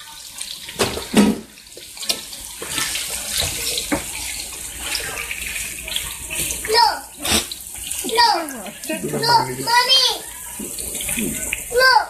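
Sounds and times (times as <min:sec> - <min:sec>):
sausages sizzling in a pan: 0:00.0 - 0:12.0.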